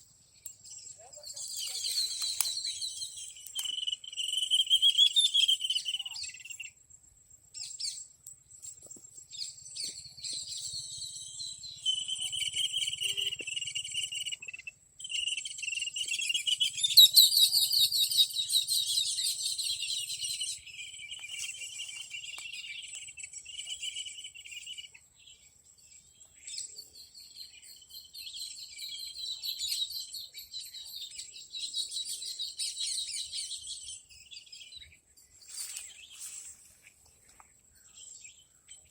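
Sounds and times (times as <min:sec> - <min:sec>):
birds calling: 0:00.0 - 0:06.7, 0:08.8 - 0:38.9
insects chirping in high trills: 0:00.0 - 0:38.9
thin high insect tone: 0:00.2 - 0:38.8.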